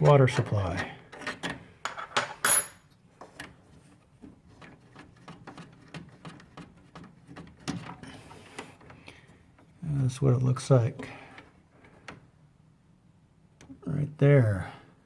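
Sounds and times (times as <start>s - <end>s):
wrench clinking on metal nut: 1.9s - 2.9s.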